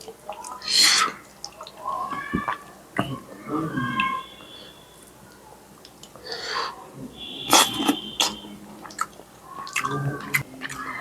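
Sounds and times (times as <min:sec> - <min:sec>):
person chewing and lip smacking: 0:07.5 - 0:11.0.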